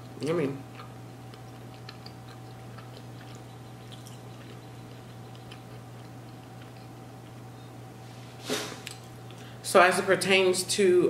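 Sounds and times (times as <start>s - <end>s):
person chewing: 0.0s - 7.5s.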